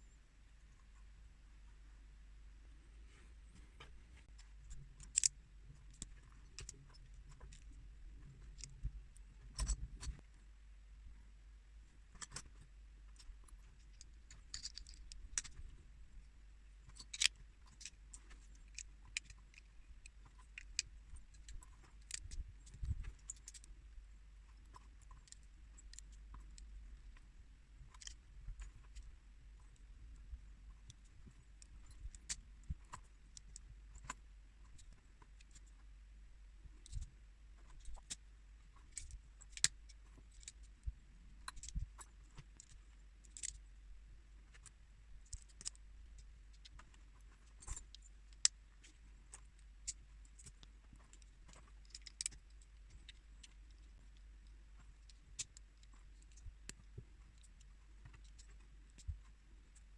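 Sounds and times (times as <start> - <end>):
faint low hum: 0.0 - 59.9
plastic bricks clicking: 5.0 - 5.3, 14.5 - 15.5.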